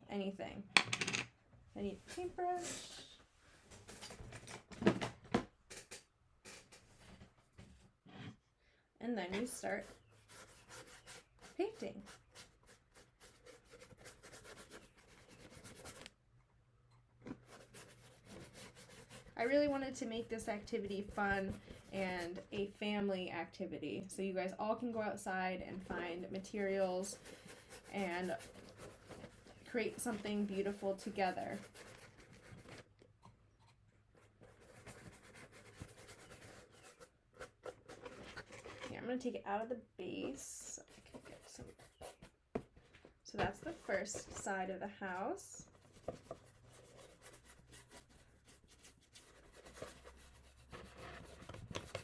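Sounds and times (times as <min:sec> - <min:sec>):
paintbrush strokes on cardboard: 0:09.4 - 0:16.1, 0:25.8 - 0:32.8, 0:33.6 - 0:37.7.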